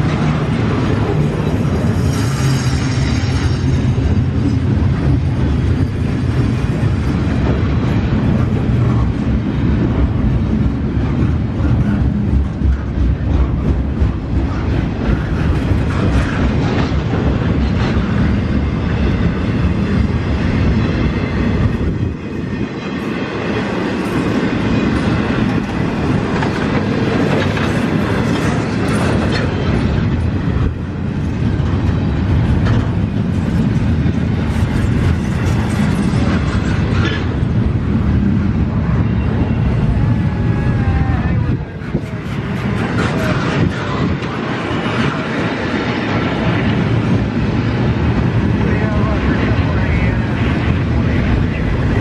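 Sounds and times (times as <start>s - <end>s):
train wheels clattering over rail joints: 0.0s - 38.4s.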